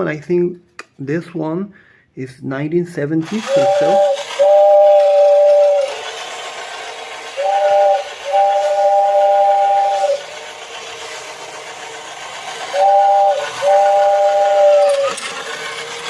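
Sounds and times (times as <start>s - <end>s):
toy train two-note whistle: 3.3s - 10.5s, 12.3s - 15.6s.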